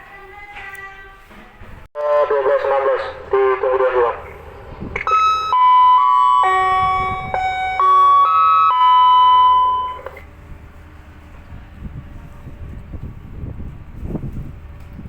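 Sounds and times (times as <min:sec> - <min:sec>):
wind: 0:00.0 - 0:15.0
engine rumble: 0:01.5 - 0:15.0
electronic chime melody: 0:05.1 - 0:10.0.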